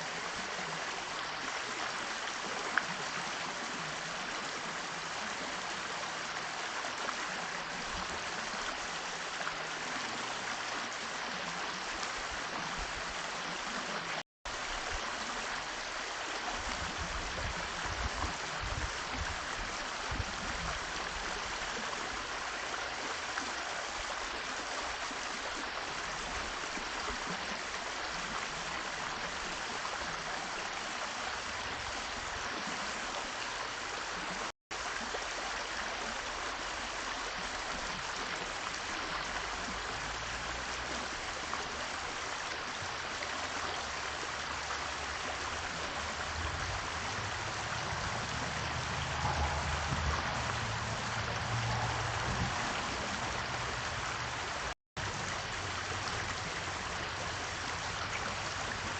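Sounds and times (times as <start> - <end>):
running water rushing: 0.0 - 58.9.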